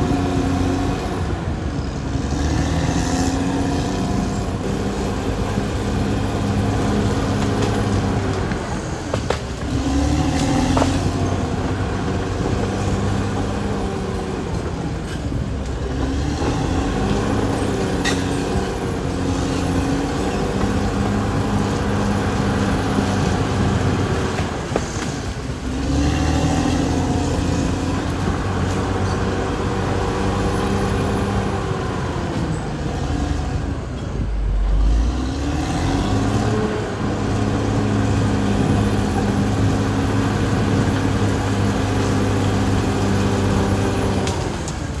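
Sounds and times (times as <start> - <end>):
bulldozer diesel engine running: 0.0 - 45.0.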